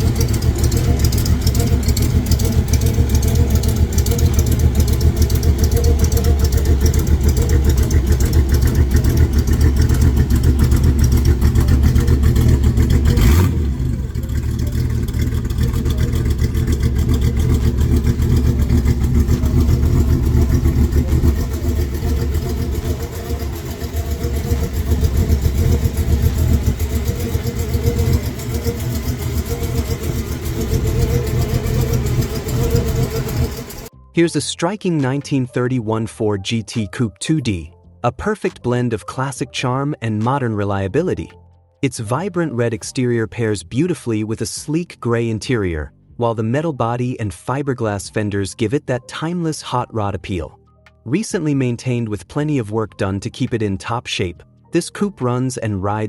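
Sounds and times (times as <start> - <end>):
hot rod engine rumbling: 0.0 - 33.9.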